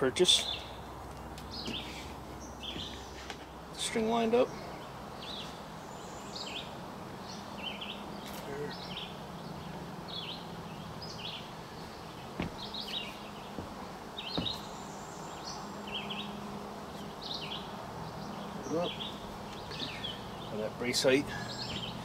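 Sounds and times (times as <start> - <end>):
songbird chirping: 0.0 - 22.0
light knocks: 12.4 - 14.7.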